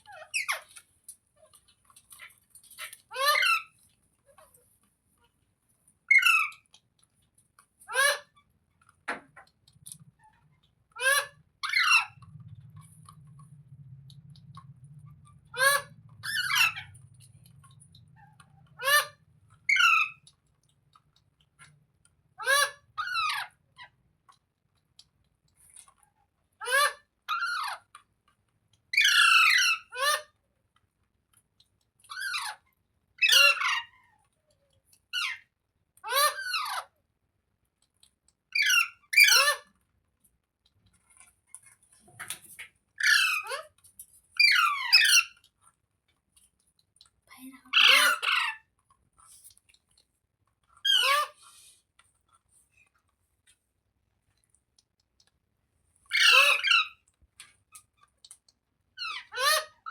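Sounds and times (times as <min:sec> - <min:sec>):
parrot squawking: 0:02.8 - 0:03.7, 0:06.1 - 0:06.6, 0:07.9 - 0:08.3, 0:11.0 - 0:12.2, 0:15.3 - 0:17.0, 0:18.2 - 0:20.2, 0:22.4 - 0:23.6, 0:29.0 - 0:30.3, 0:33.2 - 0:34.0, 0:36.0 - 0:36.9, 0:38.6 - 0:39.7, 0:43.0 - 0:43.7, 0:44.4 - 0:45.4, 0:47.7 - 0:48.7, 0:50.8 - 0:51.4, 0:56.1 - 0:57.0, 0:59.0 - 0:59.9.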